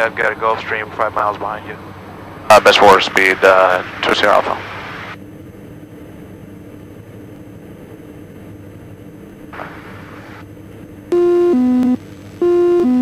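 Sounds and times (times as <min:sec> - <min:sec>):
aircraft engines droning: 0:00.0 - 0:11.4.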